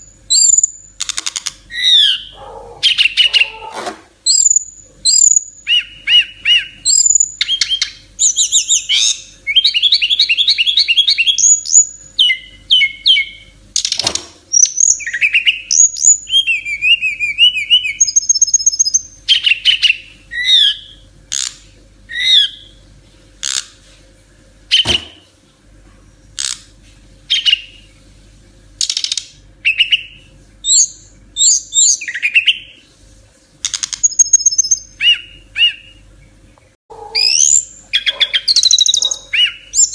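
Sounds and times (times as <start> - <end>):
songbird singing whistles and trills: 0.0 - 0.9, 1.7 - 3.6, 4.2 - 13.9, 14.5 - 21.5, 22.1 - 22.8, 27.3 - 28.0, 28.8 - 32.8, 33.7 - 36.1, 37.2 - 39.9
sharp knocks: 24.8 - 25.2.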